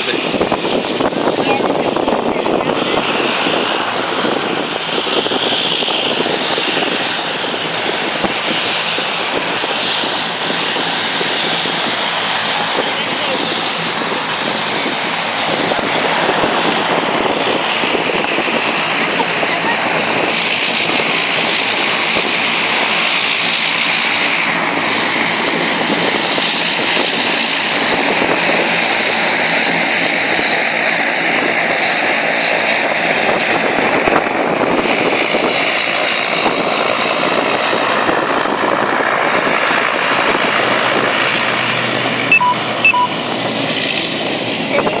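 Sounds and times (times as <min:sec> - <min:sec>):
jet airliner engines running: 0:00.0 - 0:45.0.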